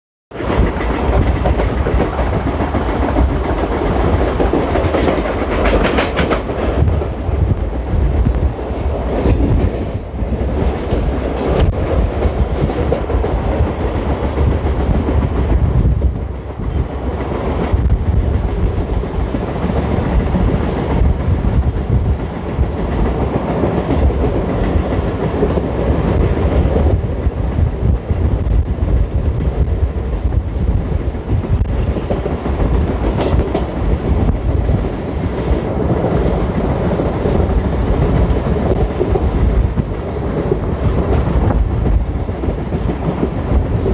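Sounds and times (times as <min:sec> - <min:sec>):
passing train: 0:00.3 - 0:43.9
train wheels rumbling and clattering: 0:00.3 - 0:43.9.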